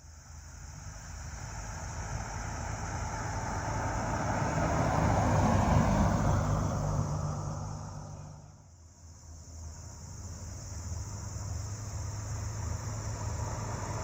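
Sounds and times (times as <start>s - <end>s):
vehicle engine approaching: 2.1s - 8.7s.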